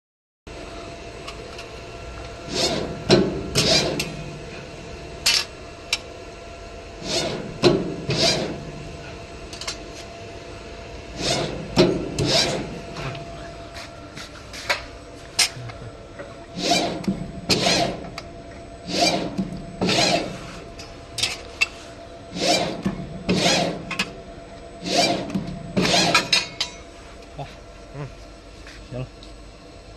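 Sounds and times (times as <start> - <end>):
press brake motor hum: 1.1 - 26.4
short noisy bending bursts: 18.9 - 20.5, 22.3 - 23.9.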